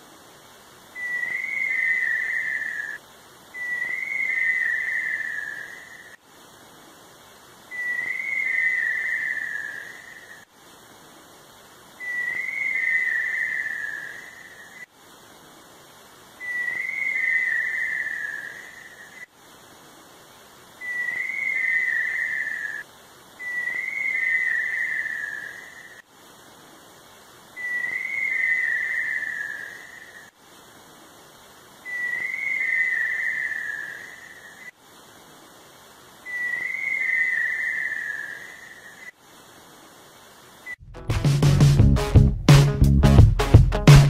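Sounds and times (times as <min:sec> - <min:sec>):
bird whistled call: 0:01.0 - 0:06.2, 0:07.7 - 0:10.4, 0:12.0 - 0:14.9, 0:16.4 - 0:19.3, 0:20.8 - 0:22.8, 0:23.4 - 0:26.0, 0:27.6 - 0:30.3, 0:31.8 - 0:34.7, 0:36.2 - 0:39.1.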